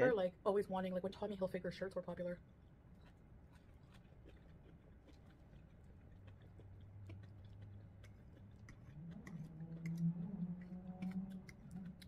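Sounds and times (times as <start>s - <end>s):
faint chewing of soft food: 2.4s - 12.0s.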